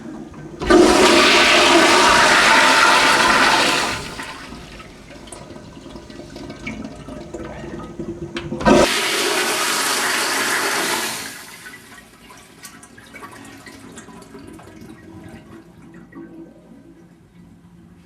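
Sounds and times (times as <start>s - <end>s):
water trickling: 0.0s - 8.9s
toilet flushing: 0.0s - 18.0s.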